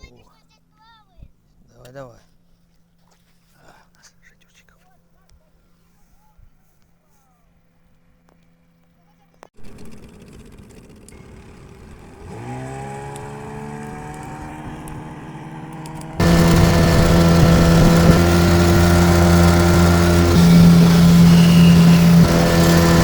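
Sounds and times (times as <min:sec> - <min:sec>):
loud steady engine: 0:09.6 - 0:23.0
small engine starting and running: 0:09.6 - 0:23.0.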